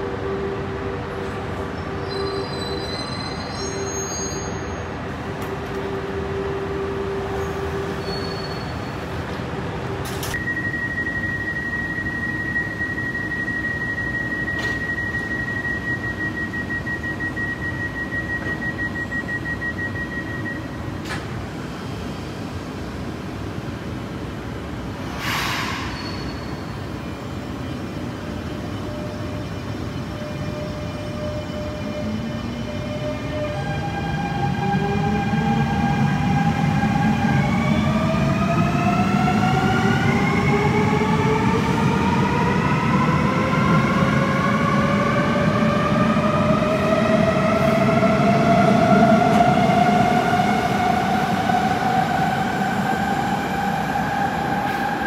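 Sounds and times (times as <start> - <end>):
train rumble and hum: 0.0 - 55.0
rapidly pulsing warning beep: 10.4 - 20.8
short hiss: 25.1 - 26.1.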